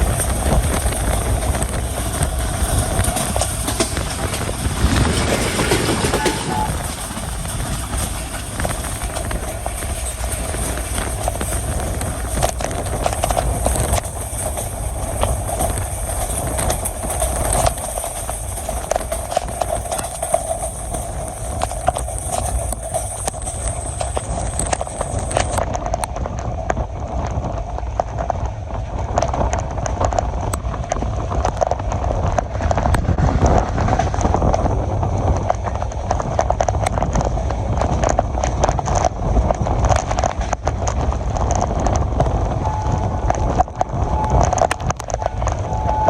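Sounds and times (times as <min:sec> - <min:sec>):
train rumbling: 0:00.0 - 0:46.0
wheels clattering over rails: 0:00.0 - 0:46.0.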